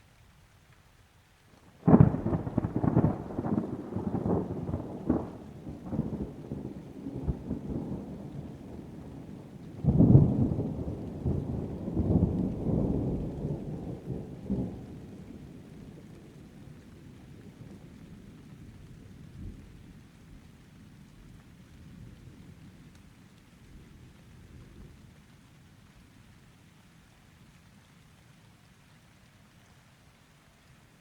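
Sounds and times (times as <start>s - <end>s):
thunder clap and rumble: 1.9s - 16.2s.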